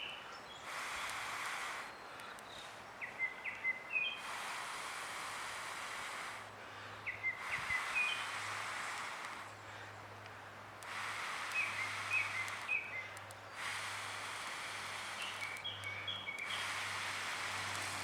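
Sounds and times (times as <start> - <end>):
outdoor hiss: 0.0 - 18.0
songbird chirping: 15.1 - 16.8.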